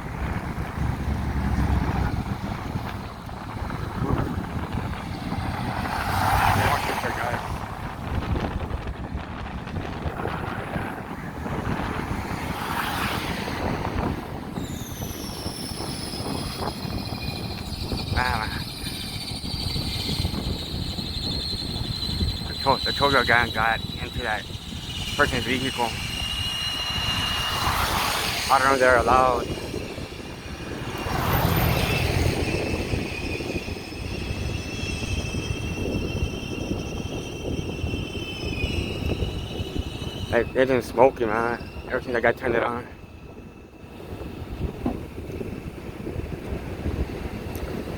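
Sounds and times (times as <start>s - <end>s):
low vehicle rumble: 0.0s - 47.9s
wind buffeting microphone: 0.0s - 47.9s
rushing swell: 10.0s - 44.4s
high falling whine: 13.2s - 42.7s.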